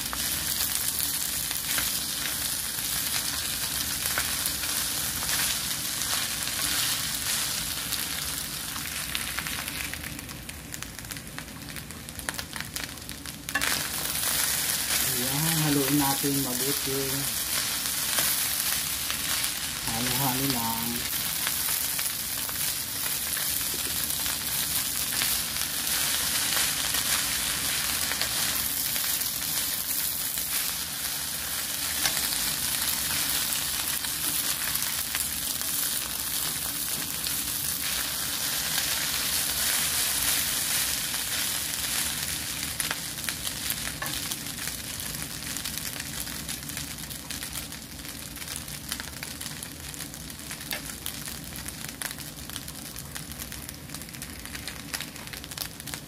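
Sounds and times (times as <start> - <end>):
rice sizzling in a pan: 0.0 - 56.0.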